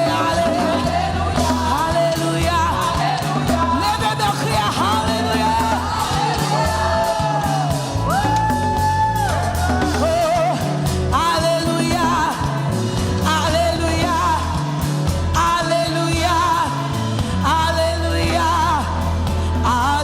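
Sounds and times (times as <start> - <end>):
gospel band playing: 0.0 - 20.0
person singing with vibrato: 0.0 - 20.0.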